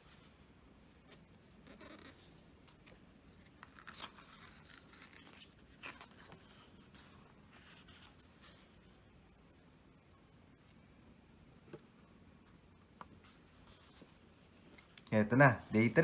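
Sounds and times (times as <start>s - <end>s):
book pages turning: 1.1s - 9.1s, 13.1s - 15.0s.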